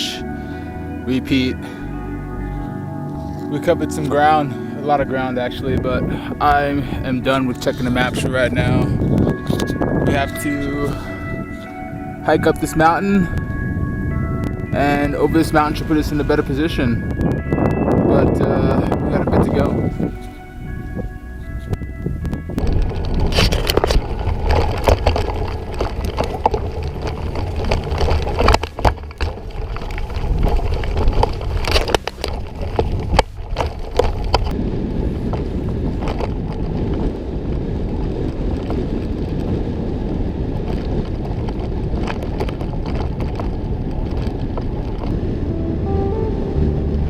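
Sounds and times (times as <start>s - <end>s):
wind on microphone: 0.0s - 47.0s
bike rattling and knocking: 22.4s - 37.2s, 40.5s - 45.2s.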